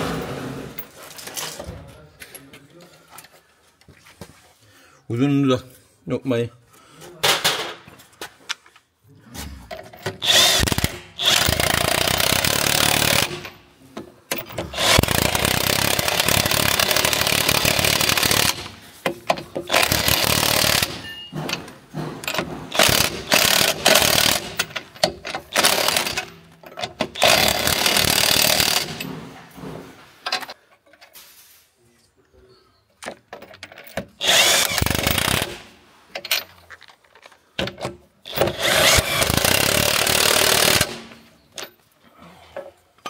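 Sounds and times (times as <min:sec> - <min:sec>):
impact wrench hammering: 0:10.0 - 0:13.6, 0:14.3 - 0:29.4, 0:34.2 - 0:35.7, 0:38.3 - 0:41.2.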